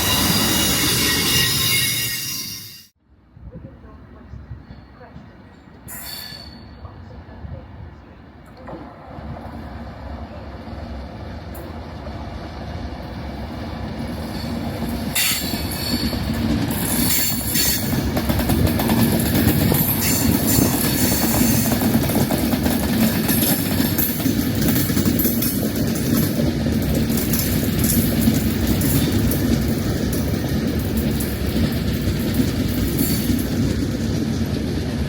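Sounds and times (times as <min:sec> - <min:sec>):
passenger train running on rails: 0:00.0 - 0:35.0.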